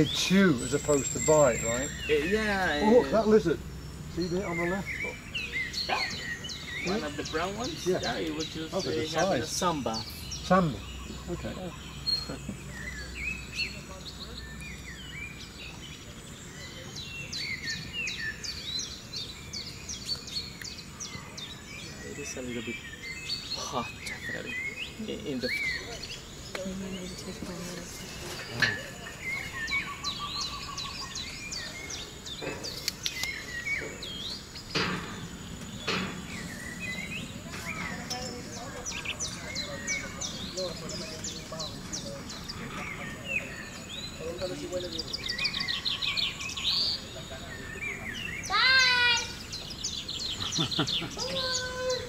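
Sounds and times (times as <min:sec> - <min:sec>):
birds chirping and whistling: 0:00.0 - 0:52.0.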